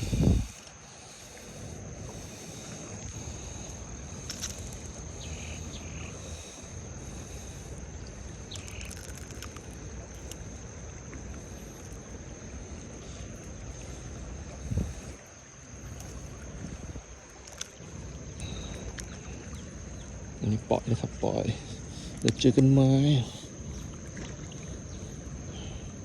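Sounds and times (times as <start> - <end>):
high-pitched insect drone: 0.0 - 17.2
low wind rumble: 0.0 - 21.2
faint chirps: 18.4 - 20.6.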